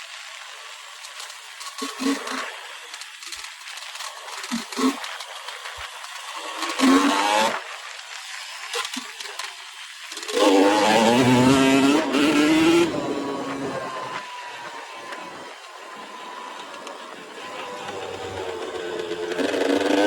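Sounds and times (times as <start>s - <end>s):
motorcycle engine revving: 1.7s - 2.6s, 6.0s - 7.7s, 10.1s - 20.0s.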